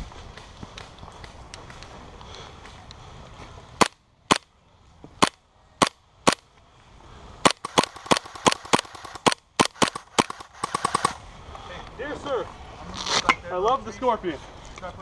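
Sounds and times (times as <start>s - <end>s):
airsoft gun shots: 7.4s - 11.2s.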